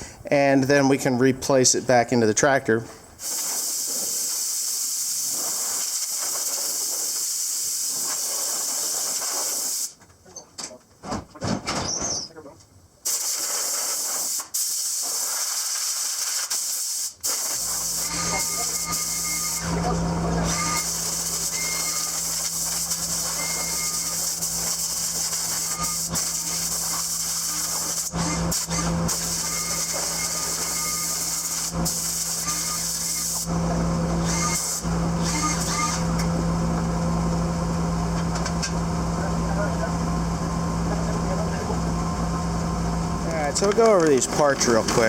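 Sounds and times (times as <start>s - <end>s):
compressed air hissing: 3.2s - 10.0s, 13.0s - 19.1s, 20.7s - 33.5s
steady hiss: 3.2s - 10.0s, 13.0s - 18.0s.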